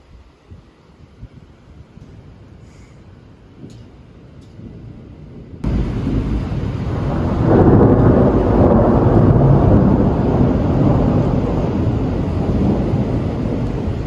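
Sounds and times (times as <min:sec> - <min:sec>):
thunder rumbling: 0:03.4 - 0:14.0.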